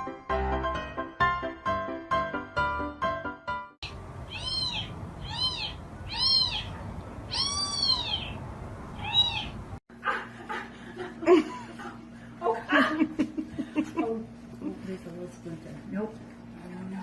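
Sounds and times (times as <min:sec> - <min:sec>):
piano music: 0:00.0 - 0:06.1
animal high cries: 0:03.8 - 0:08.4, 0:09.0 - 0:09.6.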